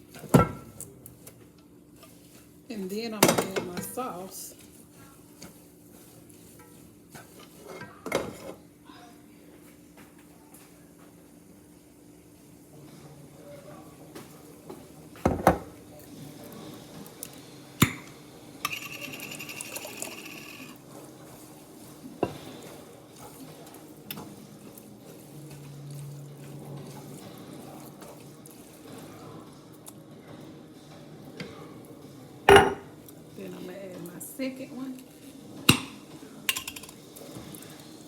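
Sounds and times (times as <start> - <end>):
scraping rasping in pot: 18.7 - 20.8
kitchenware knocking against pot: 32.5 - 32.9.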